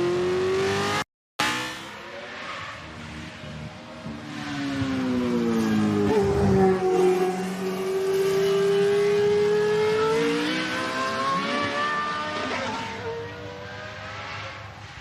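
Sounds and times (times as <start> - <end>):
racing car engine accelerating: 4.1 - 15.0.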